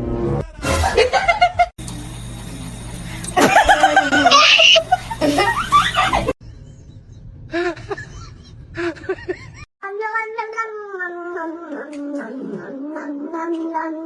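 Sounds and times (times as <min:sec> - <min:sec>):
people laughing: 0:03.4 - 0:06.4
short calls: 0:04.3 - 0:05.0.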